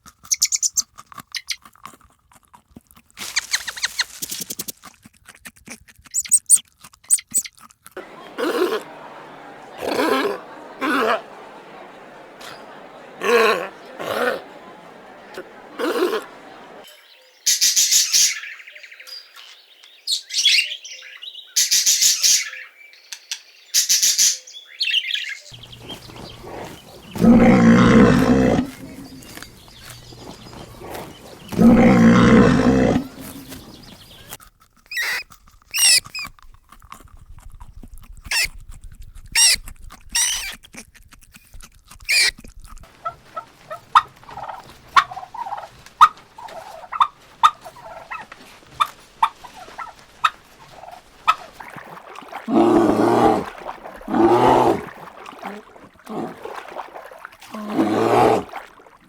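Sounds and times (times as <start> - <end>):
high bird chirps: 0.3 - 0.8, 6.2 - 7.5.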